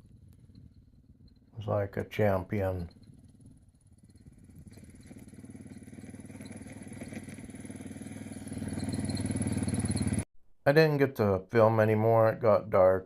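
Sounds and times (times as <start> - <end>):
motorcycle engine running: 0.0 - 1.5, 2.1 - 10.3.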